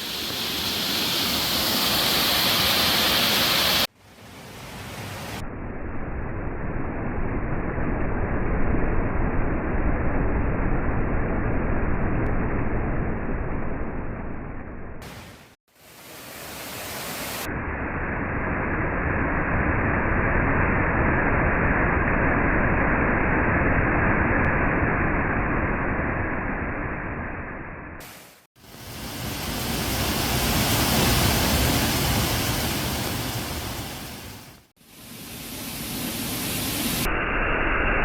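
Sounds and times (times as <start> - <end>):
waterfall rushing: 0.0 - 3.9, 28.6 - 34.6.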